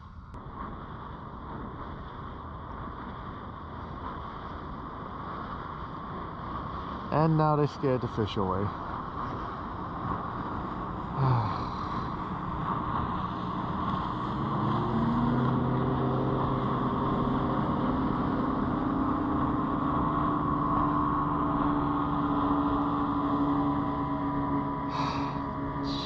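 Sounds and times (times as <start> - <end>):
constant hiss: 0.0 - 14.4
outboard engine running: 0.0 - 26.0.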